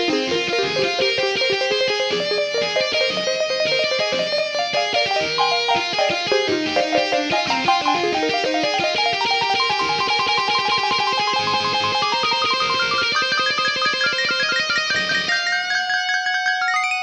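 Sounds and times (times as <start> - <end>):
guitar picking fast notes: 0.0 - 17.0.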